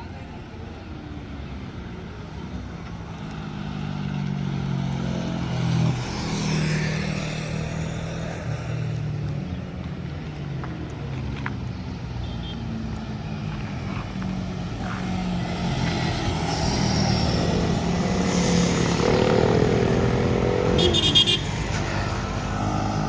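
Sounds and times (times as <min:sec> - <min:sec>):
motorcycle engine passing by: 0:03.5 - 0:08.8, 0:13.2 - 0:23.0.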